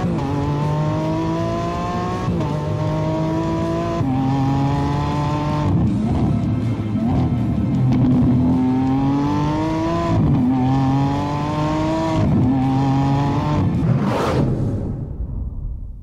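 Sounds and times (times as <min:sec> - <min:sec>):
car engine accelerating: 0:00.0 - 0:15.8
short whoosh: 0:13.8 - 0:16.0.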